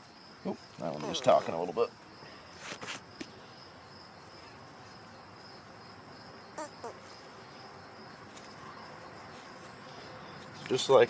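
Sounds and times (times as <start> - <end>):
short insect call: 2.0 - 10.6
insect chirring: 5.0 - 8.2.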